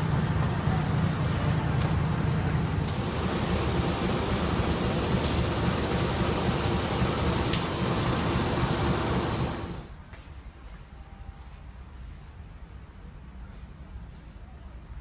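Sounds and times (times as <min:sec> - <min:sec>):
train rumbling: 0:00.0 - 0:10.1.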